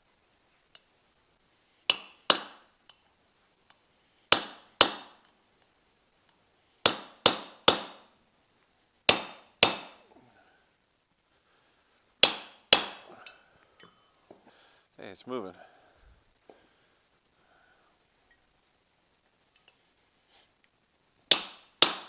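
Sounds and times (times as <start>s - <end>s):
hammer striking metal: 12.2s - 13.1s, 21.3s - 22.0s.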